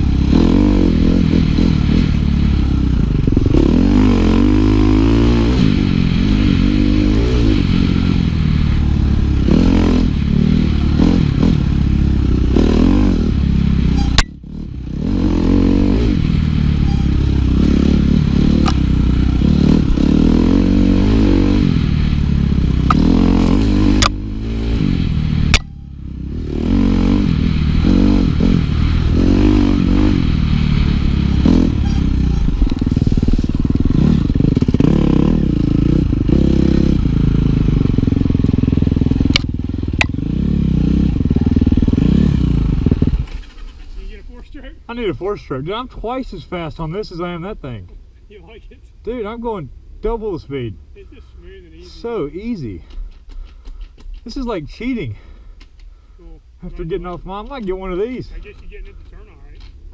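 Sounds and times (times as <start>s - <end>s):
dirt bike engine revving: 0.0s - 44.2s.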